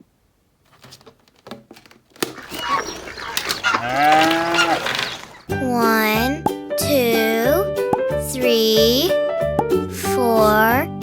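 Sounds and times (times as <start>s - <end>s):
cow mooing: 2.4s - 5.4s.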